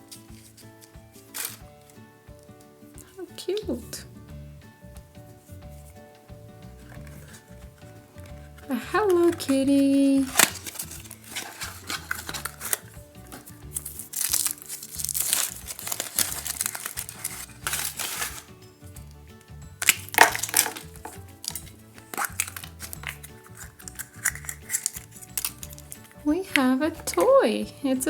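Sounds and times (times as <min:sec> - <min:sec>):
wrapper crinkling and tearing: 0:00.0 - 0:02.0, 0:06.8 - 0:18.6, 0:19.8 - 0:26.2
background music: 0:00.0 - 0:28.0.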